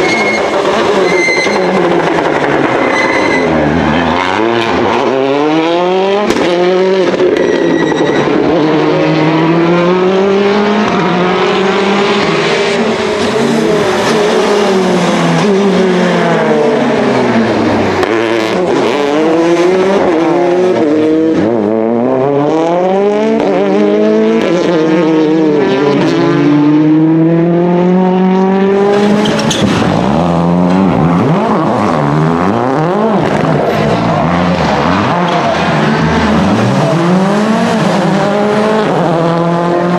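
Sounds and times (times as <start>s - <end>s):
tyre squeal: 0.0s - 4.5s, 7.3s - 8.5s, 28.9s - 30.0s
rally car engines revving: 0.0s - 39.9s.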